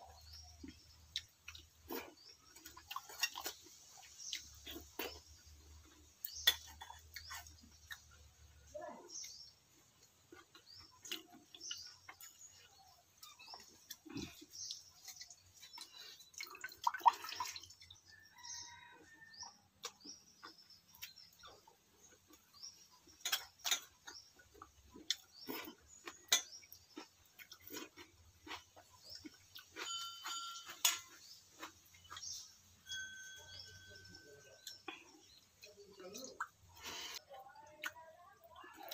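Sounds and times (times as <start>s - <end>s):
person chewing and smacking: 0.1s - 8.3s, 9.2s - 18.0s, 19.7s - 32.7s.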